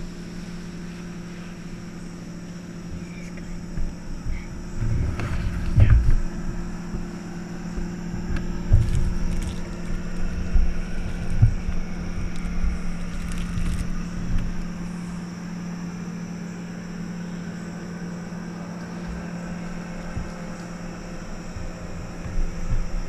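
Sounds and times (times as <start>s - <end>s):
engine running steadily: 0.0s - 23.0s
low thumps and bumps: 2.6s - 15.2s, 19.0s - 23.0s.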